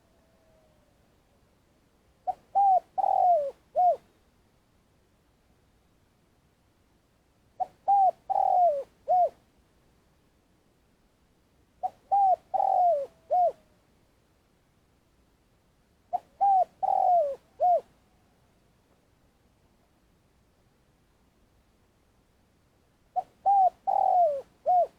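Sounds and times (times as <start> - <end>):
dove cooing: 0.0 - 1.0, 2.2 - 4.1, 7.6 - 9.4, 11.8 - 13.7, 16.1 - 18.2, 23.1 - 24.9.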